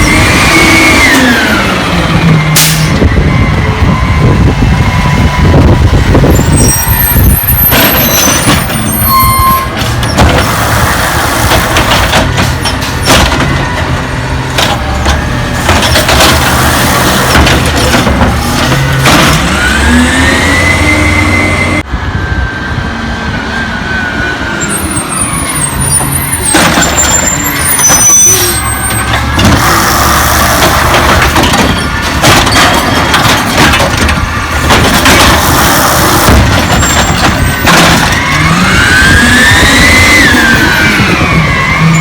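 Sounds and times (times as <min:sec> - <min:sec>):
truck diesel engine revving: 0:00.0 - 0:09.0, 0:09.7 - 0:22.1, 0:22.8 - 0:42.0
knocks and clatter: 0:07.6 - 0:09.0, 0:09.7 - 0:10.6, 0:11.4 - 0:19.7, 0:26.4 - 0:27.2, 0:28.6 - 0:29.8, 0:30.4 - 0:39.7.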